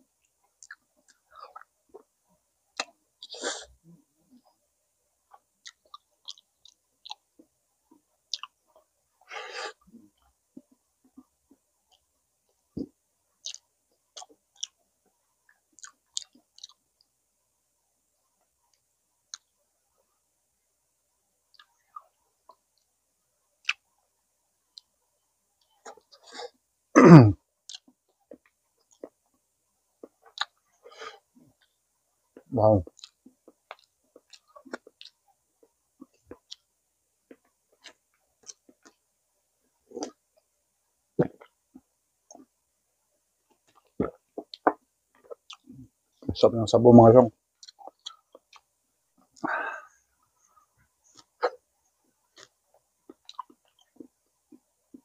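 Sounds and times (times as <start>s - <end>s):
person chewing with mouth clicks: 0.4s - 2.1s, 5.3s - 7.5s, 8.3s - 8.8s, 12.8s - 14.8s, 15.5s - 16.8s, 19.3s - 19.5s, 21.5s - 22.9s, 23.6s - 23.9s, 27.6s - 29.4s, 30.0s - 30.7s, 32.4s - 36.7s, 37.3s - 39.1s, 39.9s - 40.5s, 41.2s - 42.6s, 43.5s - 45.8s, 47.6s - 55.0s
chewing clicks: 32.9s - 35.2s, 47.6s - 48.7s.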